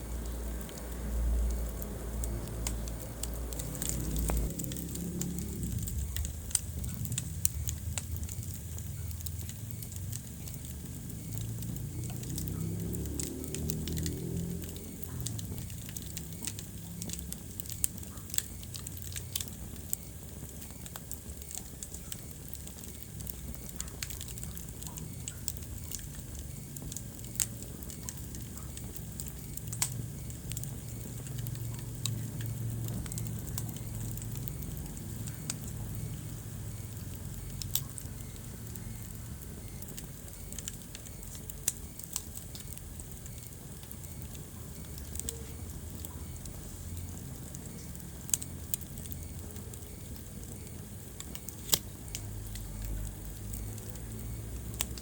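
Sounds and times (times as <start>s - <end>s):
low rumble of flame: 0.0s - 55.0s
wood fire crackling and popping: 0.0s - 55.0s.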